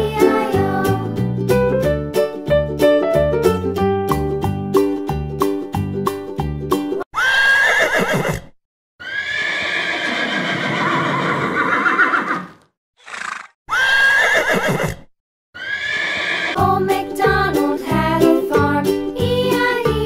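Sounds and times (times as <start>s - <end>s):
horse whinnying: 7.1s - 16.6s.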